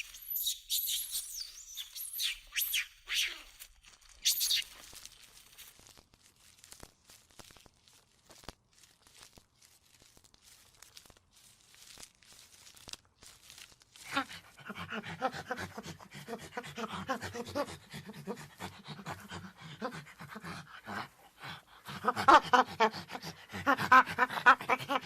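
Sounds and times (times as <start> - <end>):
faint clicks and rustling: 3.5 - 14.1
dog panting quickly: 14.1 - 25.0.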